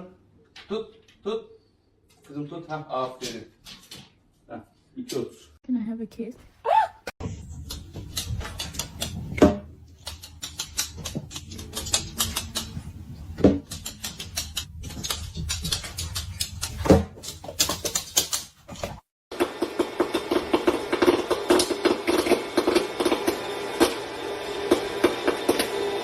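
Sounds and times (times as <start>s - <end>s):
rapid irregular clicking and tapping: 7.6s - 13.0s, 13.6s - 19.0s.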